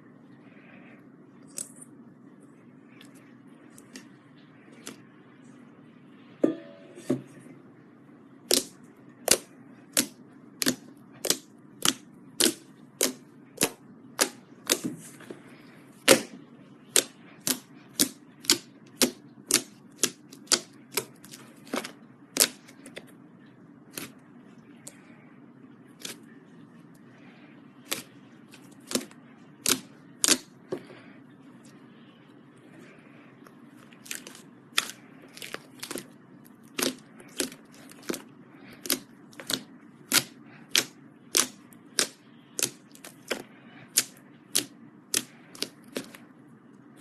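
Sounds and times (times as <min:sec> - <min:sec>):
slime clicking and popping: 0:38.8 - 0:46.1.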